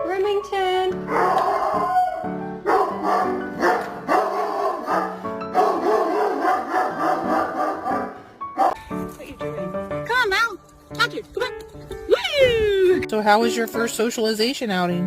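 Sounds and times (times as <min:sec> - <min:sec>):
background music: 0:00.0 - 0:15.0
dog barking and yipping: 0:01.1 - 0:08.8.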